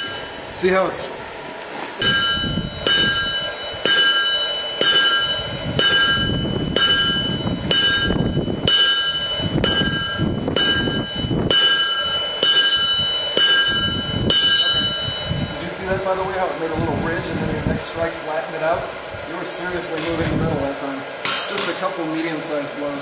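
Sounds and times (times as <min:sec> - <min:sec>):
hammer ringing on anvil: 0:00.0 - 0:01.1, 0:02.0 - 0:16.2, 0:21.2 - 0:21.8.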